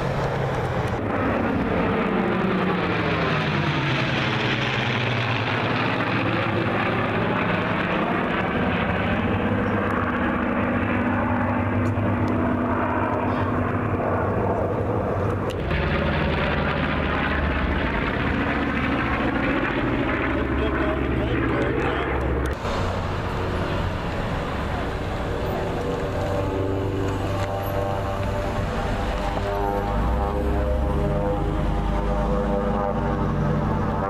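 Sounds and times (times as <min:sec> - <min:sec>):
aircraft flying past: 0:00.0 - 0:34.0
deep rumble: 0:13.7 - 0:34.0.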